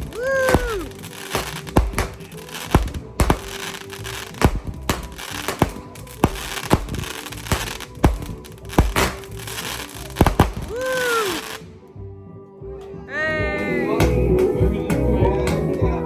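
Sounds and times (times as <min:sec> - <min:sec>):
fireworks bangs: 0:00.0 - 0:11.6
fireworks crackle: 0:00.0 - 0:11.7.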